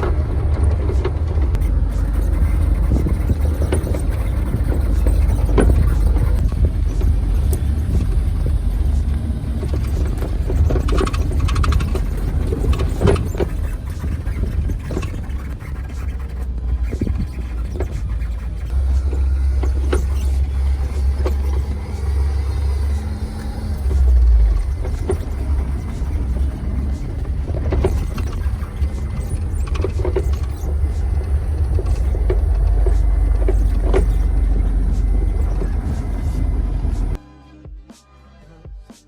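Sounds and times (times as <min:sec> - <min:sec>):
knocks and clunks: 0:00.0 - 0:37.2
vehicle engine rumble: 0:00.0 - 0:37.3.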